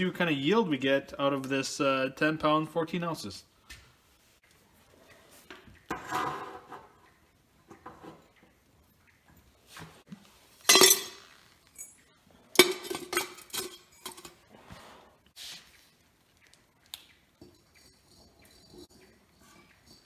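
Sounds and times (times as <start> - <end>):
scrap metal clinking and clattering: 10.6 - 14.6, 17.4 - 20.0.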